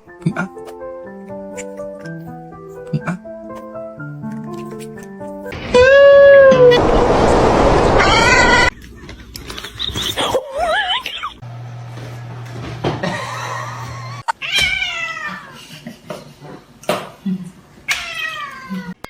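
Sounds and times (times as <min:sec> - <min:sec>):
cats yowling and meowing: 0:14.2 - 0:15.6, 0:17.9 - 0:19.0.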